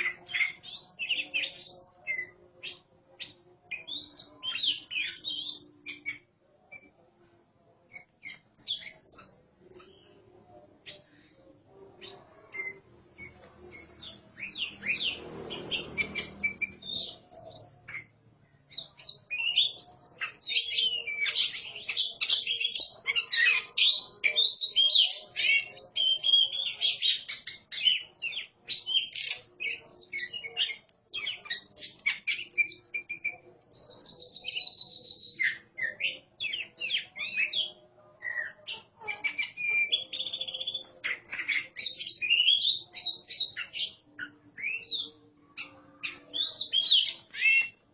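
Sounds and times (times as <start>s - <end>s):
birds singing whistled phrases: 12.5s - 18.1s, 18.7s - 47.8s.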